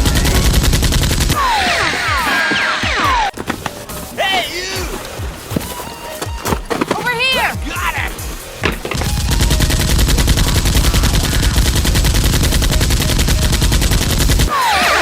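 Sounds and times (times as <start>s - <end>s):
automatic gunfire: 0.0s - 3.0s, 8.9s - 14.5s.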